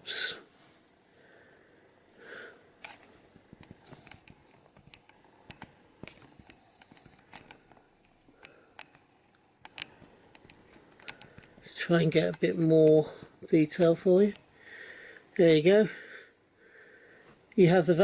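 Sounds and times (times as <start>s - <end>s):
small handling clicks and taps: 2.8s - 9.0s, 9.6s - 13.0s.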